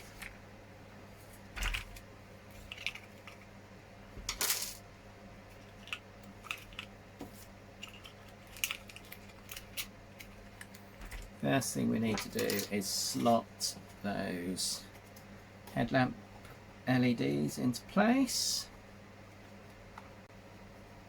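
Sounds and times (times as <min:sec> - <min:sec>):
steady low hum: 0:00.0 - 0:21.0
hands handling small parts: 0:01.5 - 0:03.5, 0:05.5 - 0:11.4, 0:12.0 - 0:13.4.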